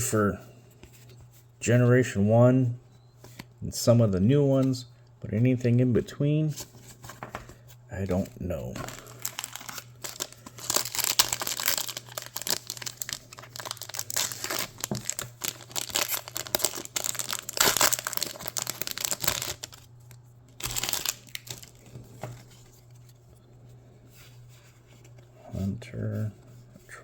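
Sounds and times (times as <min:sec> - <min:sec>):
foil wrapper crinkling: 0:07.2 - 0:23.0.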